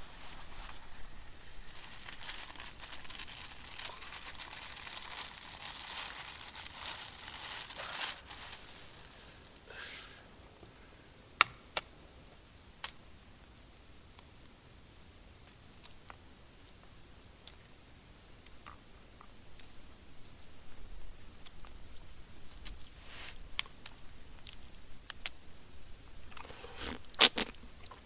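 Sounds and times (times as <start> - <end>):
crinkling rustling handling noise: 0.0 - 9.7.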